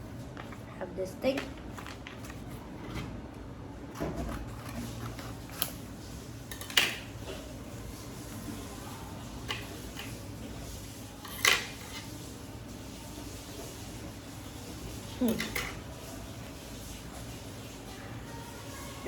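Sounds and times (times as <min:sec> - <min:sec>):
paper crinkling and folding: 0:01.3 - 0:06.3.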